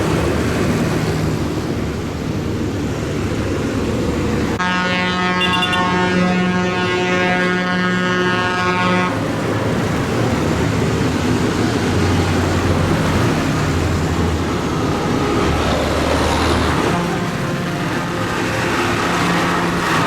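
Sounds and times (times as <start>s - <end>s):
tractor engines passing: 0.0s - 20.0s
vehicle horn: 4.6s - 9.3s, 14.0s - 20.0s.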